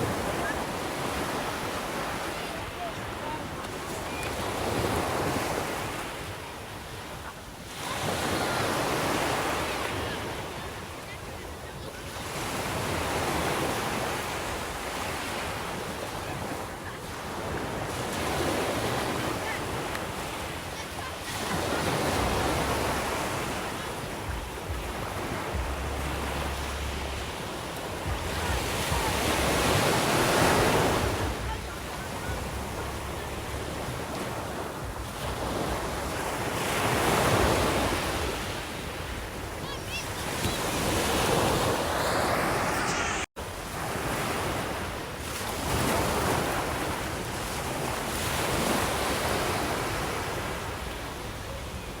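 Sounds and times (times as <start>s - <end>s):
sea waves washing onto shore: 0.0s - 52.0s.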